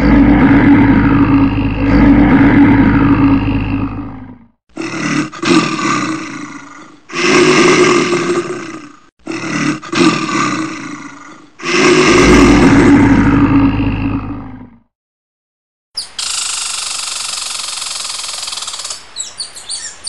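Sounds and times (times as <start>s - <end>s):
bear roaring: 0.0s - 14.9s.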